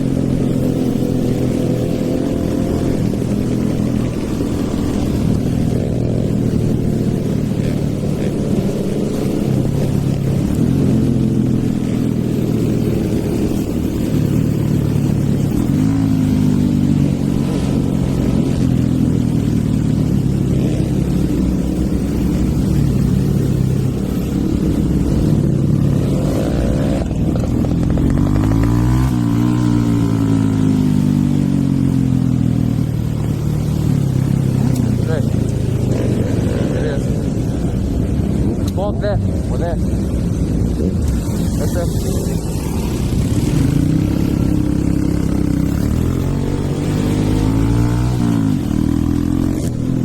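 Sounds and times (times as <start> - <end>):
motorcycle engine revving: 0.0 - 50.0
second engine passing: 40.8 - 50.0.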